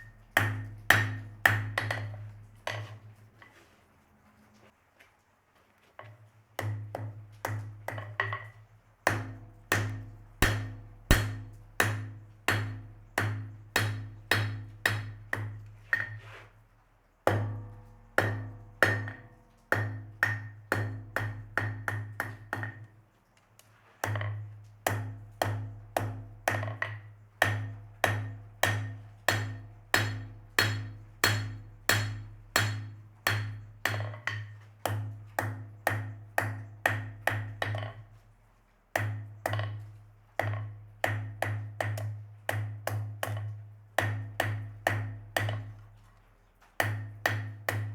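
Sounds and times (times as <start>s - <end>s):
hammer ringing on anvil: 10.4s - 11.4s, 29.3s - 33.5s.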